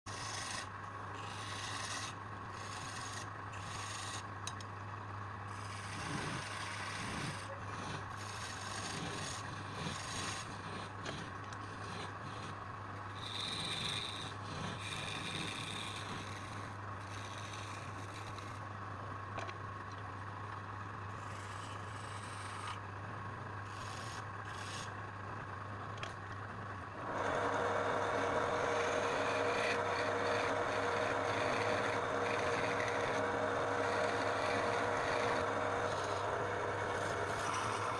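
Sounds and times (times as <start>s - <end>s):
tool rasping against wood: 0.1s - 4.3s, 5.5s - 18.6s, 21.1s - 22.8s, 23.6s - 24.9s, 27.0s - 37.9s
motor-driven tool running: 0.1s - 4.6s, 5.5s - 18.6s, 27.0s - 37.9s
steady low hum: 0.1s - 37.9s.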